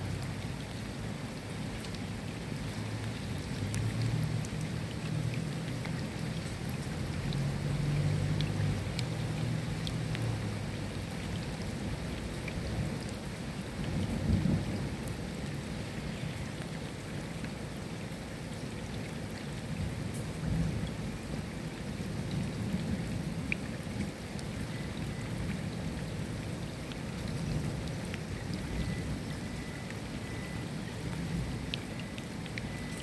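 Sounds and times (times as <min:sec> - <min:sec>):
steady rain: 0:00.0 - 0:33.0
low thunder rumbles: 0:13.8 - 0:15.0.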